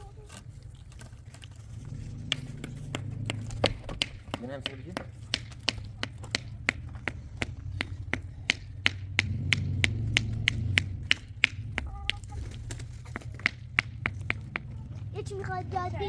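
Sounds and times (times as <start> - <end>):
low hum: 0.0 - 16.0
rhythmic tapping: 2.0 - 16.0.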